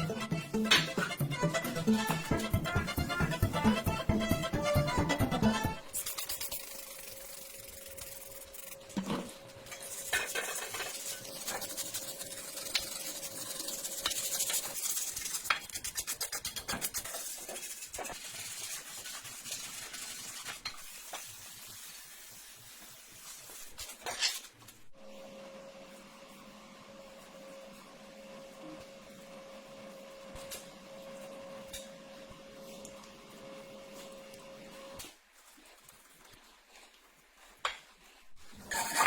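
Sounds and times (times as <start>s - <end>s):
scraping and rubbing on metal: 5.9s - 21.7s, 38.5s - 39.0s.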